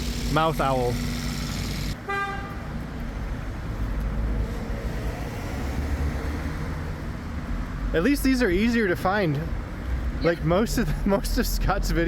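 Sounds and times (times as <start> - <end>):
street traffic rumbling: 0.0 - 12.0
car horn toot: 2.0 - 2.7.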